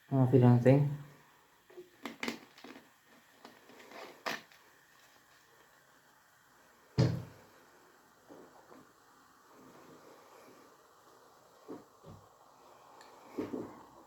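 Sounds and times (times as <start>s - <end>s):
loud thump: 7.0s - 7.3s.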